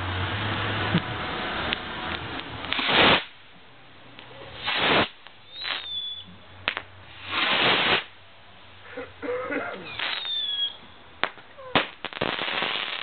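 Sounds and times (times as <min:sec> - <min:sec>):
firework crack: 0:00.7 - 0:08.3, 0:09.8 - 0:13.0
fireworks bursting: 0:01.0 - 0:08.2, 0:09.8 - 0:13.0
short whistling tone: 0:05.5 - 0:06.3.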